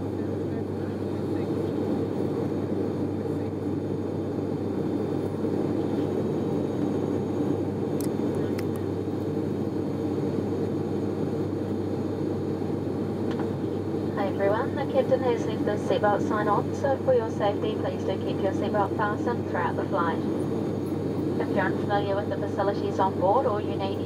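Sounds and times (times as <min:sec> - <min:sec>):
turboprop cabin drone: 0:00.0 - 0:24.0.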